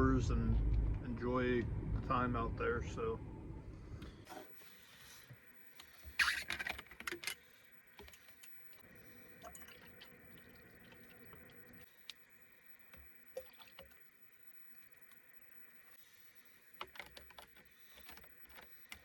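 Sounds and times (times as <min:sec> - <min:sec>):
faint steady hum: 0:00.0 - 0:19.0
clicks and rattles of handling: 0:16.8 - 0:19.0.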